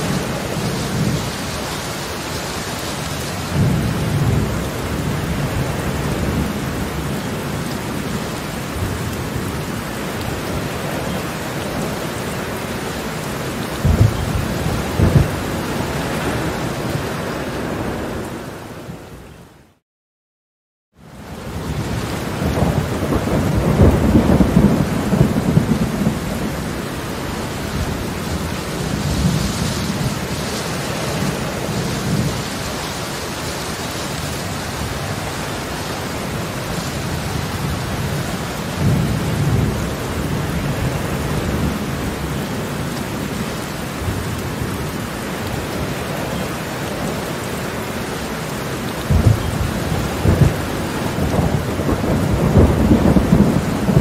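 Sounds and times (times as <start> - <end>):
heavy rain on pavement: 0.0 - 19.8, 20.9 - 54.0.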